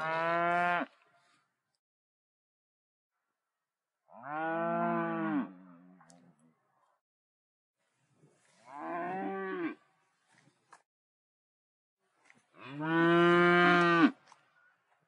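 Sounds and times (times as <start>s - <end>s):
cattle mooing: 0.0s - 0.9s, 8.8s - 9.8s.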